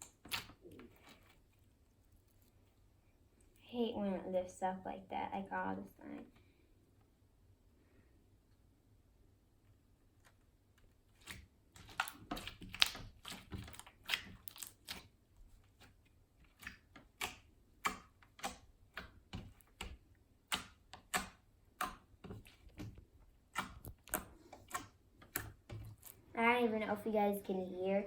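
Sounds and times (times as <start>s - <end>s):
slime clicking and popping: 0.0s - 0.8s, 11.2s - 15.1s, 16.5s - 26.1s.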